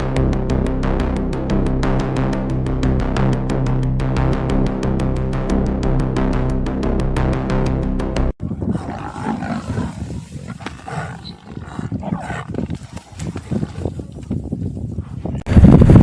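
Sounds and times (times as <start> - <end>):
buffalo calling: 8.4 - 13.8
lions growling: 8.4 - 14.4.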